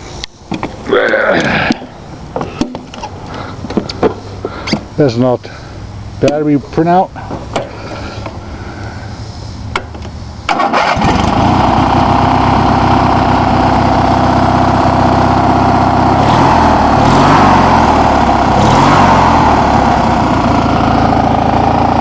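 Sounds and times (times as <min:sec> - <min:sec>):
lawn tractor engine running: 0:09.7 - 0:22.0
engine cranking: 0:10.5 - 0:12.1.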